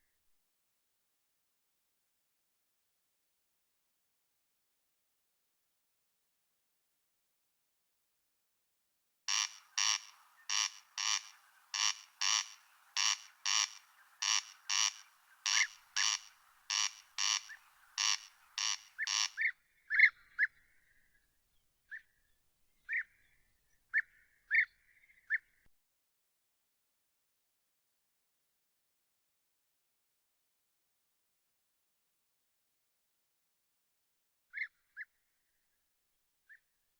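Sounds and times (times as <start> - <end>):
animal rasping calls: 9.3 - 19.4.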